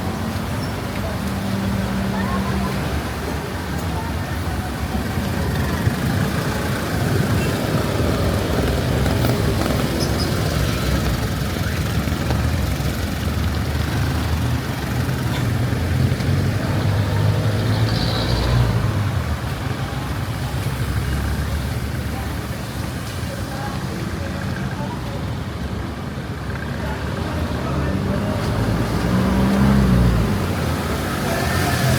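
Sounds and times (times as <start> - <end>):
vehicles passing on wet road: 0.0 - 31.9.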